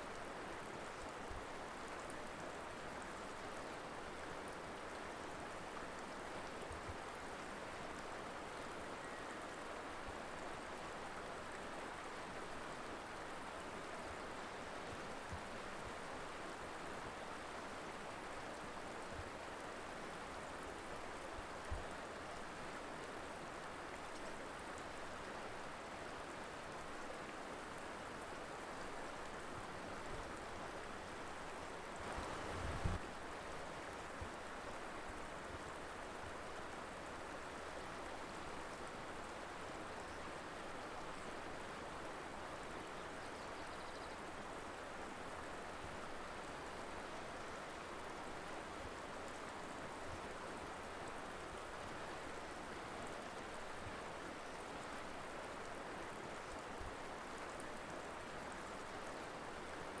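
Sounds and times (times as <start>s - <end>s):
river water rushing: 32.0s - 33.0s.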